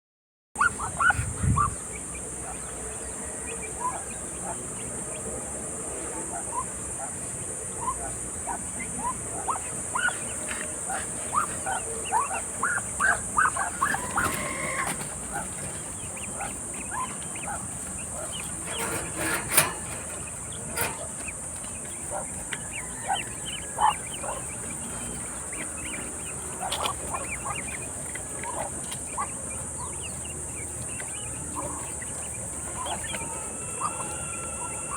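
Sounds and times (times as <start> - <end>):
ducklings peeping: 0.6 - 34.9
steady high-pitched hiss: 0.7 - 34.9.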